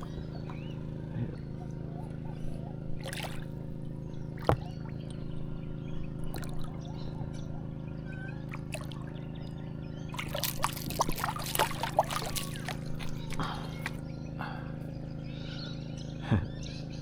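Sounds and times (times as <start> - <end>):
water splashing around kayak: 0.0 - 7.8, 8.4 - 14.1
steady low hum: 0.0 - 17.0
splashing and clattering: 3.0 - 3.5, 10.2 - 14.0.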